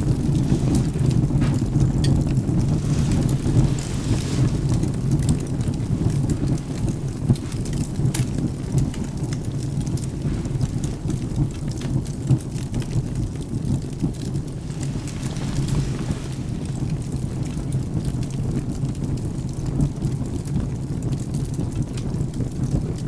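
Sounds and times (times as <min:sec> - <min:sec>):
thunder rumbling: 0:00.0 - 0:18.2
firewood crackling: 0:00.0 - 0:22.8
rain: 0:00.0 - 0:23.0.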